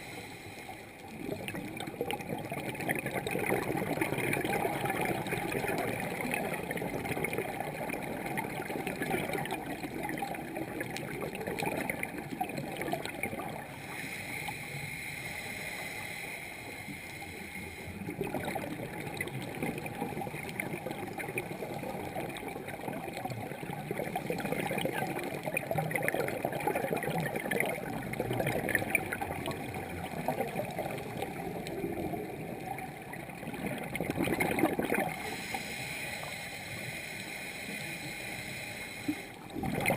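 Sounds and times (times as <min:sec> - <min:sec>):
steady hiss: 0:00.0 - 0:01.0, 0:13.6 - 0:18.2, 0:35.1 - 0:39.5
underwater bubbling and gurgling: 0:00.0 - 0:39.9.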